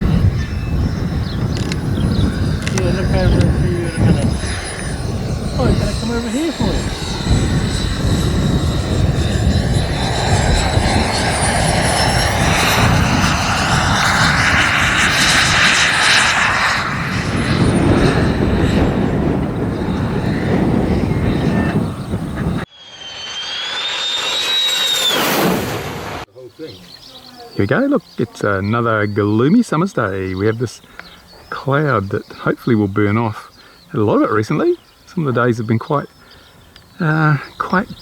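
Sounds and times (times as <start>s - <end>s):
model jet turbine passing: 0.0s - 26.3s.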